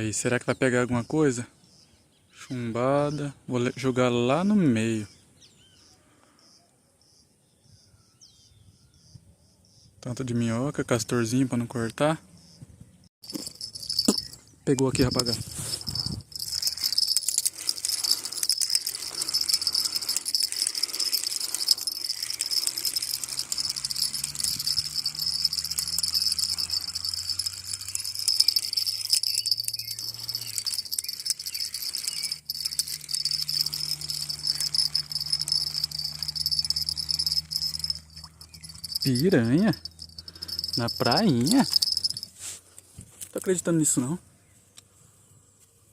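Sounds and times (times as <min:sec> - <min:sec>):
insects shrilling: 0:13.2 - 0:42.5.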